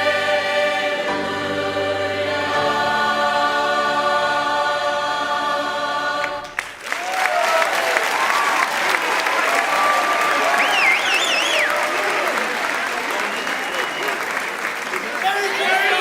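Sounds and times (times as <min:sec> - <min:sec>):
choir singing a held chord: 0:00.0 - 0:06.6
audience applause: 0:06.4 - 0:16.0.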